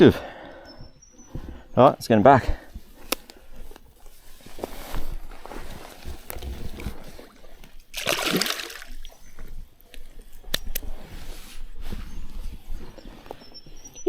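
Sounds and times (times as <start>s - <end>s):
sharp clicks: 3.0s - 3.4s
loud water splash: 8.0s - 8.8s.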